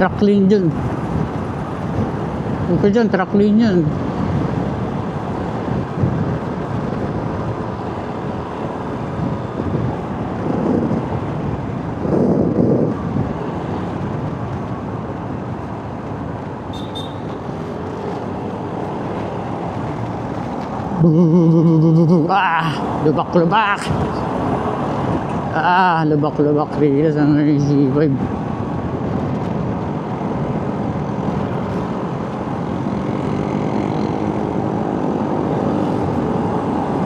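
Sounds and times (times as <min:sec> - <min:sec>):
road traffic: 0:00.0 - 0:37.0
motorcycle engine: 0:16.6 - 0:19.8.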